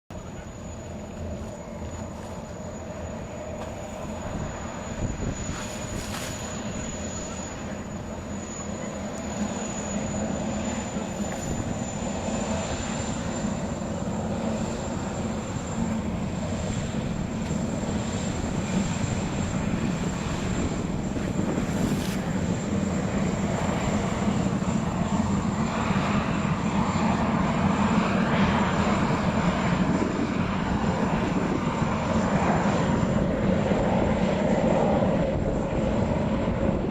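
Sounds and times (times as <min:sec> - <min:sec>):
thin high whine: 0:00.1 - 0:26.7
jet boat engine running: 0:00.1 - 0:36.9.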